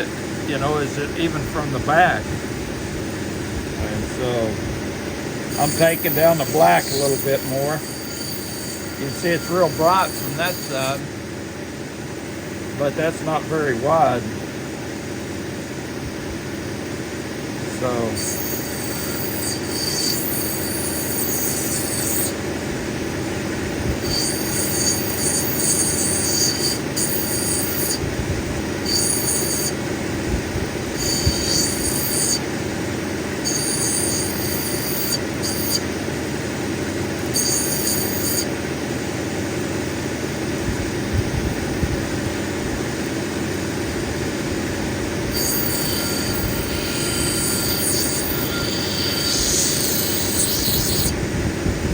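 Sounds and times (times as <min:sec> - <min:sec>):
cabbing machine running: 0:00.0 - 0:51.9
high-pitched grinding squeal: 0:05.4 - 0:11.1, 0:17.8 - 0:22.4, 0:23.9 - 0:28.1, 0:28.8 - 0:29.8, 0:30.8 - 0:32.5, 0:33.4 - 0:35.9, 0:37.2 - 0:38.6, 0:45.3 - 0:51.2.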